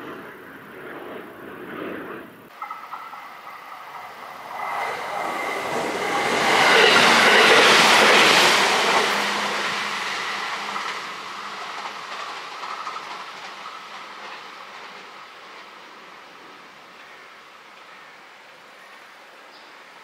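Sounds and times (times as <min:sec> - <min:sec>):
electric train passing: 0:00.0 - 0:20.0
wheels clattering on rails: 0:02.5 - 0:17.9.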